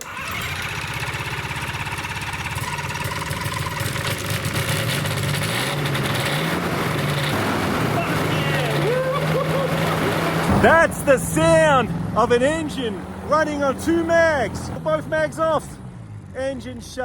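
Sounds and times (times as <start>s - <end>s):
aircraft engine running: 0.0s - 17.0s.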